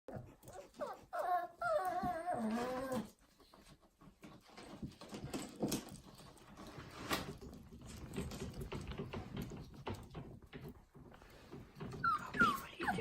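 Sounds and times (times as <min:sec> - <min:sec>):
dog whining: 0:00.1 - 0:03.2, 0:11.9 - 0:13.0.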